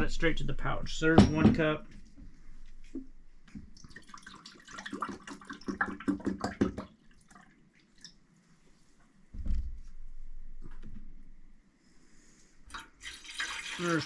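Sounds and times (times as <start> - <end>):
water pouring and splashing: 3.7 - 8.2, 12.7 - 14.0.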